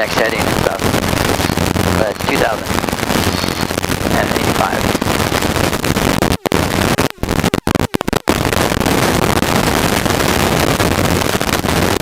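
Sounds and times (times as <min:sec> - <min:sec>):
helicopter engine and rotor noise: 0:01.4 - 0:05.4.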